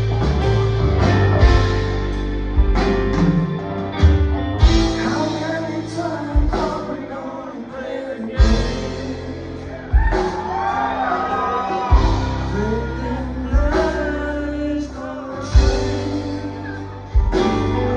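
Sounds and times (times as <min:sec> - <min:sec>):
bass: 0:00.0 - 0:17.9
electric guitar chords: 0:00.0 - 0:17.9
person singing: 0:04.7 - 0:17.9.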